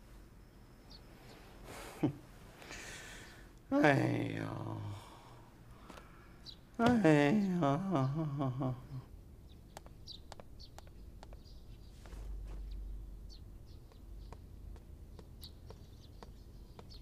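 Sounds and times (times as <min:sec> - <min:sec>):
low steady hum: 0:00.0 - 0:17.0
high bird chirps: 0:15.1 - 0:17.0.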